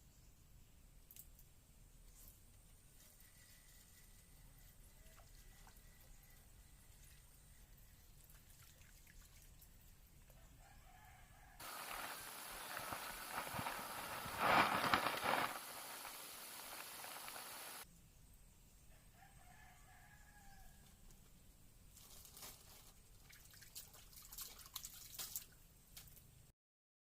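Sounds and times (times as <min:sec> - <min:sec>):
steady background hiss: 0:11.6 - 0:18.9.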